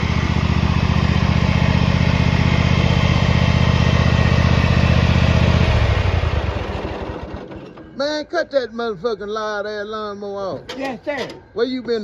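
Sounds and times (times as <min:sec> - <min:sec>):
loud lawnmower engine running: 0:00.0 - 0:08.0.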